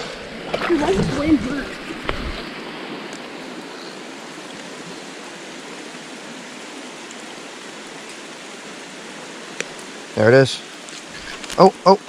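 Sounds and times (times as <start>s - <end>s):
creek water running over rocks: 0.0s - 12.0s.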